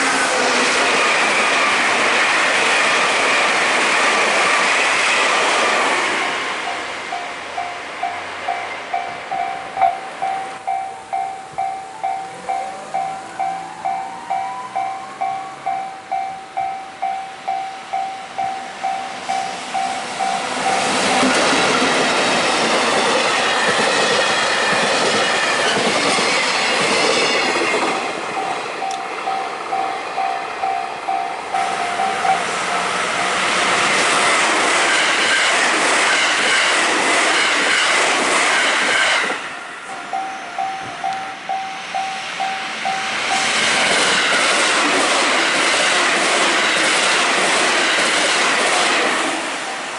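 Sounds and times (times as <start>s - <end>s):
train rushing past: 0.0s - 49.9s
level crossing warning bell: 6.6s - 21.9s, 27.2s - 34.0s, 39.5s - 44.4s
squealing train wheels: 6.7s - 49.9s.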